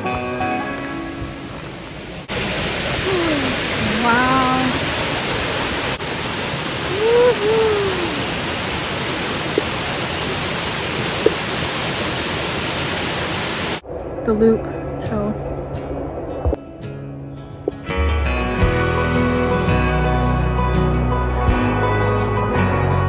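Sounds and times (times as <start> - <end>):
waterfall roaring: 0.0 - 13.8
person calling: 2.8 - 5.0, 6.5 - 10.4.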